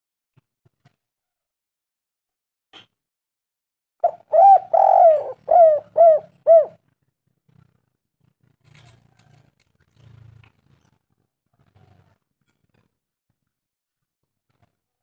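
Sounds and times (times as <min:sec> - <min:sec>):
dove cooing: 0:04.0 - 0:06.8.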